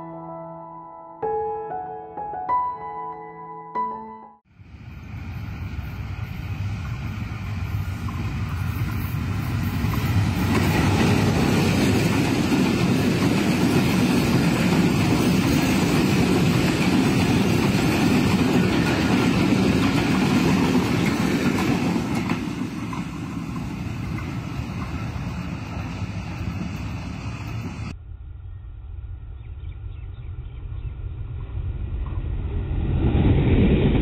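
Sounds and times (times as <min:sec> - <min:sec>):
train passing at speed: 0:04.5 - 0:28.0, 0:30.6 - 0:34.0.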